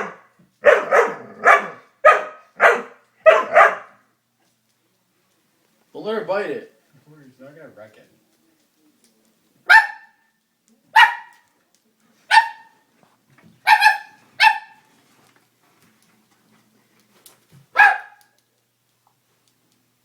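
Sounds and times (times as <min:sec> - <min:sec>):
dog barking: 0:00.0 - 0:04.1, 0:09.7 - 0:10.3, 0:10.9 - 0:11.4, 0:12.3 - 0:12.8, 0:13.6 - 0:14.8, 0:17.7 - 0:18.3.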